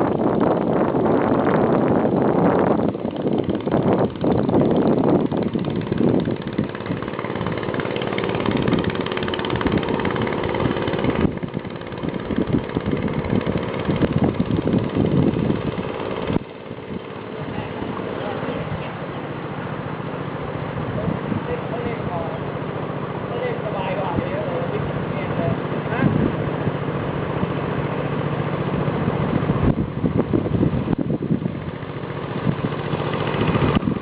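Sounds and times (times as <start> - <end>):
small boat motor running: 0.0 - 34.0
wind gusting on microphone: 0.0 - 34.0.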